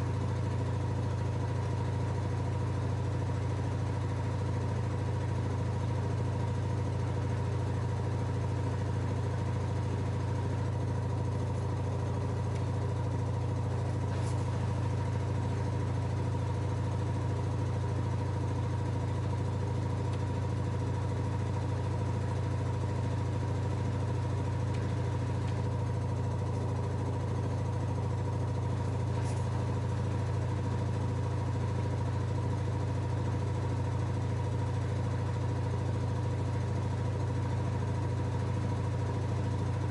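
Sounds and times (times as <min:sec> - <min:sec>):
washing machine humming: 0:06.0 - 0:32.0.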